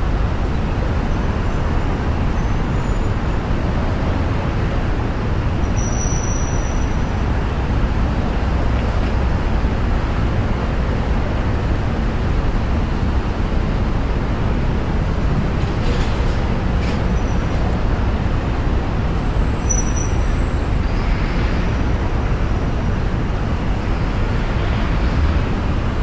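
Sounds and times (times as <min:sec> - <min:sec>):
car driving on snowy road: 0:20.3 - 0:26.0.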